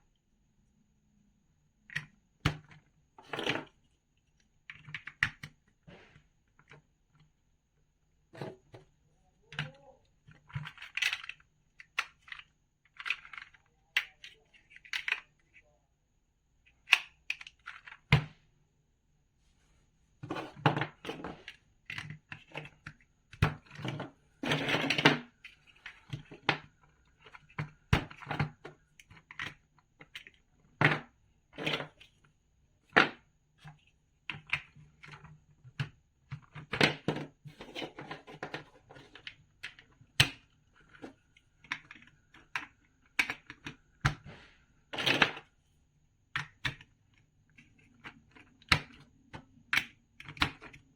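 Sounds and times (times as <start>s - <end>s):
plastic bricks clicking together: 10.4s - 15.3s.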